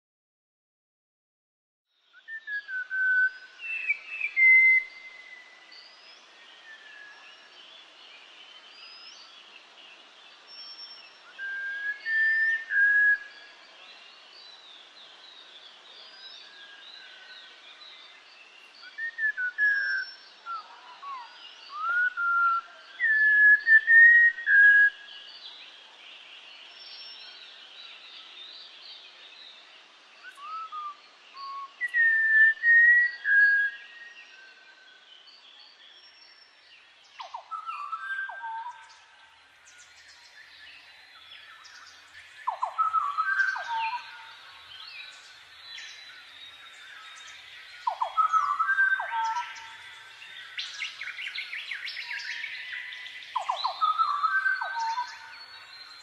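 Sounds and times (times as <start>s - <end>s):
birds whistling gliding phrases: 16.0s - 25.8s, 30.1s - 56.0s
small high bird chirps: 30.2s - 56.0s.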